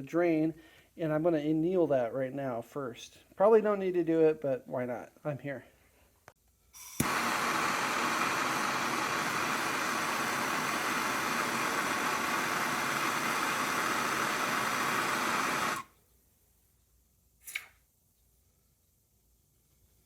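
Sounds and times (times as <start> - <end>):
gas torch hissing: 6.8 - 15.9.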